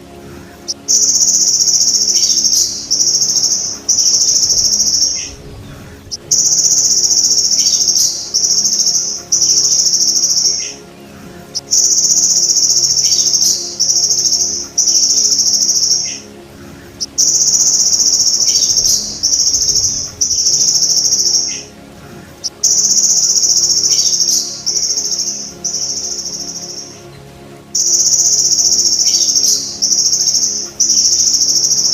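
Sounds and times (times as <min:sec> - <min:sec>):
grasshopper buzzing trills: 0:00.0 - 0:26.9.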